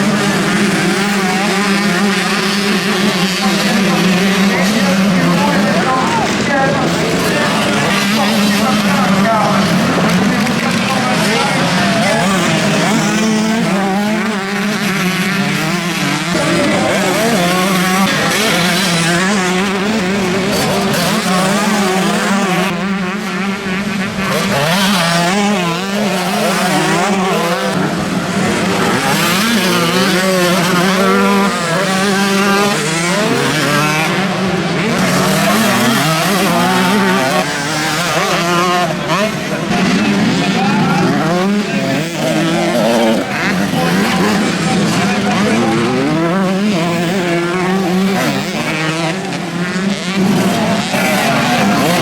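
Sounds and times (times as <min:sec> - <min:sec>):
motocross bikes revving: 0:00.0 - 0:52.0.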